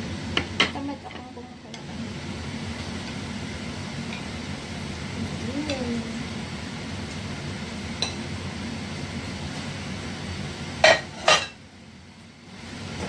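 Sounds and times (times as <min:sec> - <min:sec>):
steady low hum: 0:00.0 - 0:13.0
tongs clinking against a dish: 0:08.0 - 0:08.2.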